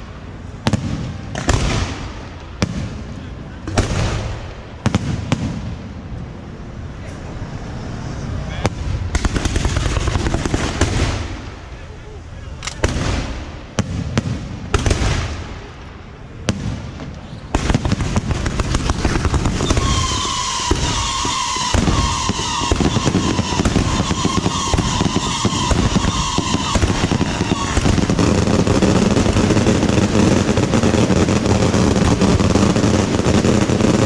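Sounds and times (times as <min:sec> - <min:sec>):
firecrackers crackling and banging: 0:00.0 - 0:34.0
steady high whistle: 0:19.6 - 0:27.8.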